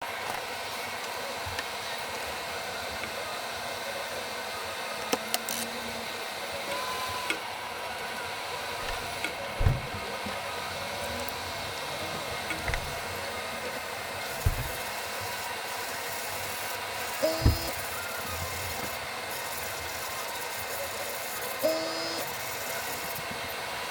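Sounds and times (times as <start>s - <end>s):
airbrush compressor humming: 14.0s - 23.2s
handling clicks and knocks: 14.4s - 14.8s.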